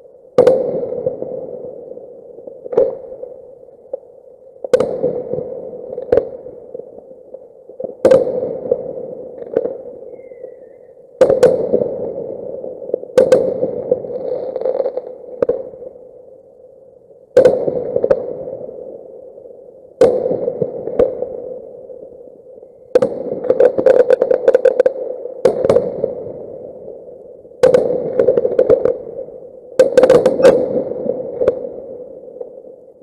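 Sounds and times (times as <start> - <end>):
fireworks bangs with rumbling echo: 8.0 - 8.6, 11.2 - 11.9, 13.1 - 13.9, 20.0 - 20.8, 27.6 - 28.8.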